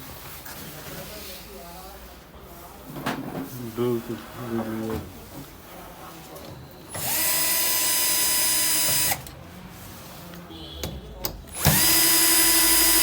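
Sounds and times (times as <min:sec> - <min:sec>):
power drill motor whining: 0:06.9 - 0:09.3, 0:11.5 - 0:13.0.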